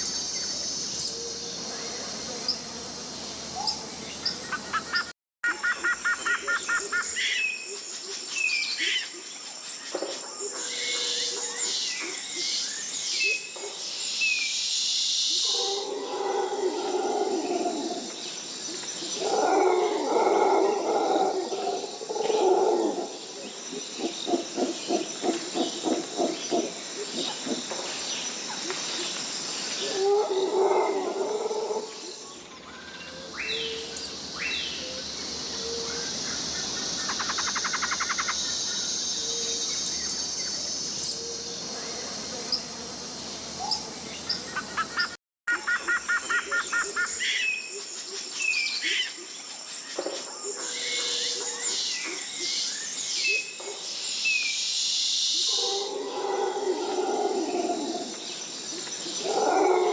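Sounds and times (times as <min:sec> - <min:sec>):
high insect buzz: 0:00.0 - 0:05.1, 0:32.9 - 0:45.1
bird calls: 0:32.3 - 0:42.8
deep animal roaring call: 0:55.7 - 0:58.1.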